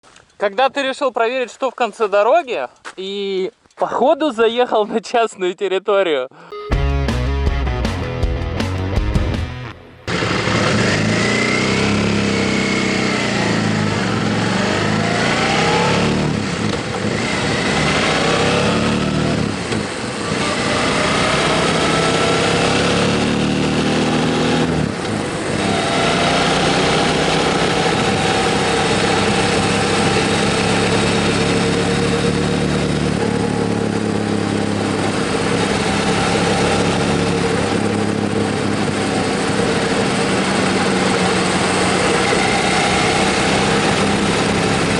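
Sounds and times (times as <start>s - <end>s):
motorcycle engine revving: 9.6s - 44.9s.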